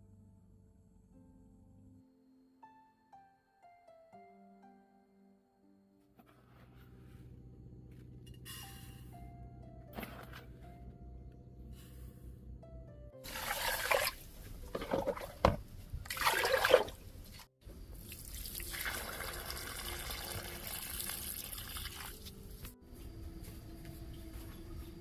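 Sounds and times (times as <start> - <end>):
running water: 13.3 - 17.4
water splashing: 13.3 - 17.5.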